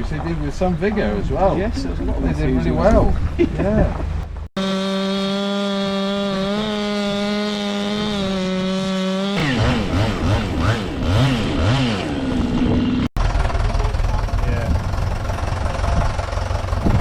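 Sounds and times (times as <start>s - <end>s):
chainsaw running and revving: 4.6s - 13.1s.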